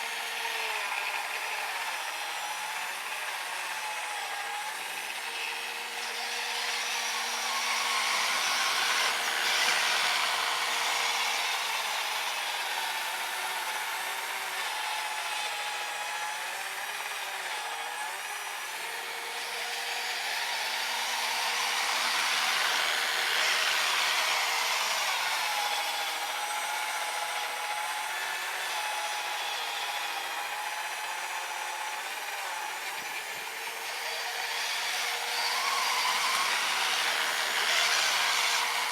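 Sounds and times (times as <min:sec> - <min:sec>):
electric motor whining: 0:00.0 - 0:38.9.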